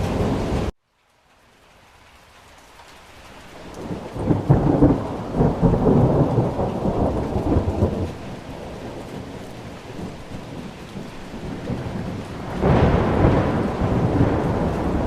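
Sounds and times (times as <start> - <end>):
thunder rolling: 0.0 - 0.7, 3.8 - 15.0
steady rain: 0.0 - 15.0.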